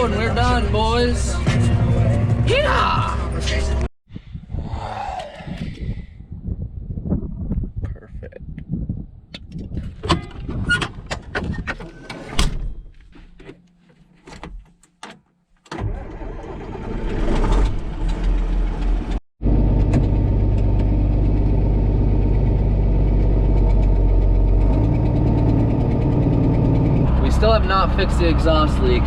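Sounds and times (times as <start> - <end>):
diesel tractor engine running: 15.8 - 29.0.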